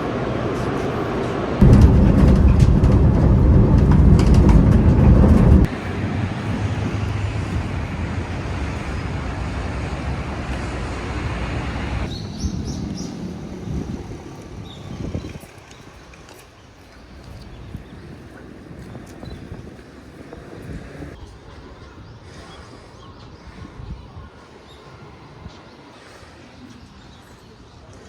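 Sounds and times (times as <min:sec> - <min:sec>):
vehicle rumble: 0:00.0 - 0:14.6.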